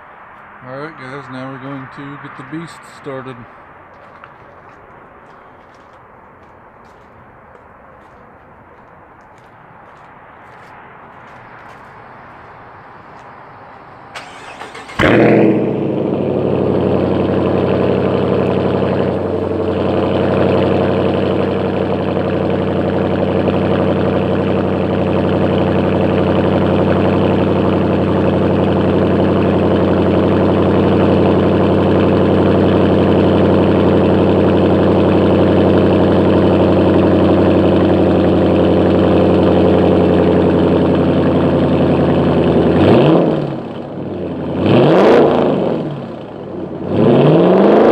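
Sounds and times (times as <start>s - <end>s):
engine starting and idling: 14.1s - 42.6s.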